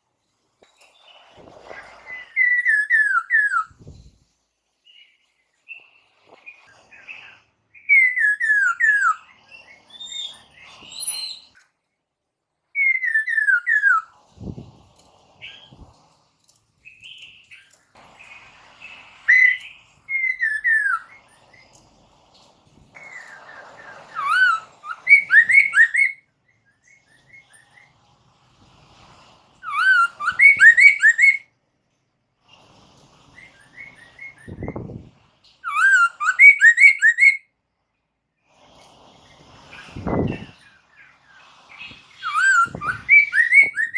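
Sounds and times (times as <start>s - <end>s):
bird singing rising whistles: 1.6s - 4.1s, 7.8s - 11.6s, 12.8s - 14.6s, 19.2s - 21.6s, 23.0s - 27.9s, 29.6s - 31.5s, 33.4s - 37.4s, 41.8s - 43.9s.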